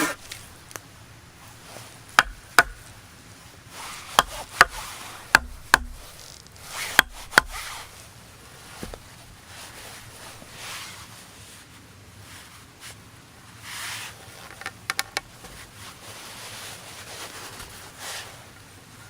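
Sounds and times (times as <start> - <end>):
rustling and handling: 0.0 - 11.1.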